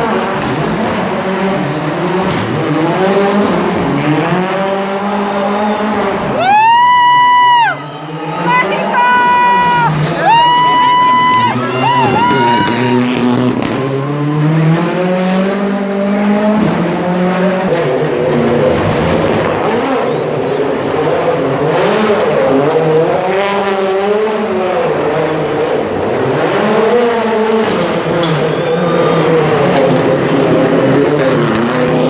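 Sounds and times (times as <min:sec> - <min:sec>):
car engine revving hard: 0:00.0 - 0:06.4, 0:08.1 - 0:32.0.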